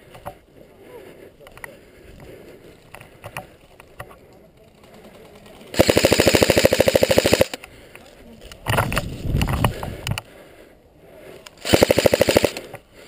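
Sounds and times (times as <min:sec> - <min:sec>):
faint clicks: 0:01.4 - 0:05.8, 0:11.3 - 0:11.6
airsoft gun full-auto burst: 0:05.7 - 0:07.6, 0:11.6 - 0:12.8.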